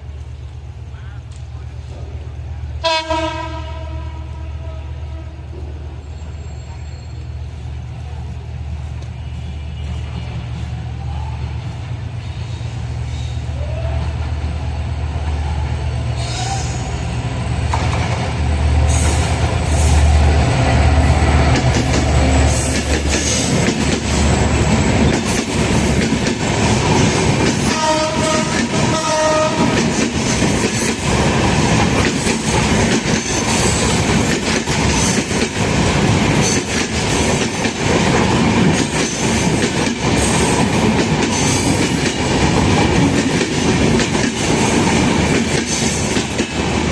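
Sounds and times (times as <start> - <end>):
train horn blasts: 2.8 - 5.7, 27.6 - 29.8
train wheels clattering over rails: 17.6 - 46.9.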